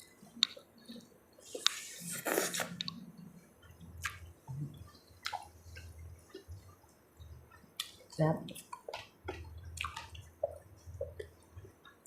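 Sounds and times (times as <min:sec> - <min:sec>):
wet chewing: 0:03.7 - 0:06.8, 0:07.5 - 0:12.0.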